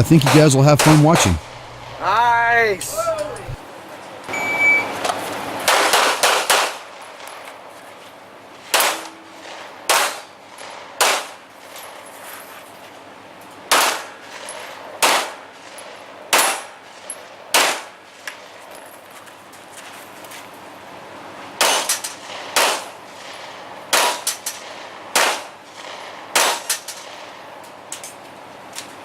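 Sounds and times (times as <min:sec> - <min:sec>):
steel targets clanging: 0:00.0 - 0:02.0
handgun shots: 0:00.2 - 0:01.7, 0:05.7 - 0:06.8, 0:08.7 - 0:09.1, 0:09.9 - 0:10.2, 0:11.0 - 0:11.3, 0:17.5 - 0:17.9, 0:21.6 - 0:22.9, 0:25.2 - 0:25.5, 0:26.4 - 0:26.8.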